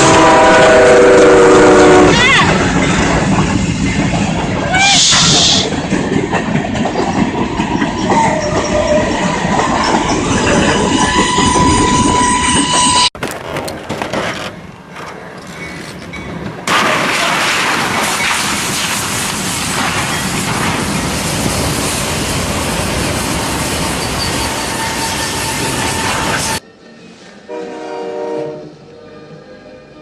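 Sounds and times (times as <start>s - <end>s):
train rumble: 0.0s - 30.0s
train wheel squeal: 6.9s - 13.1s, 22.8s - 26.6s.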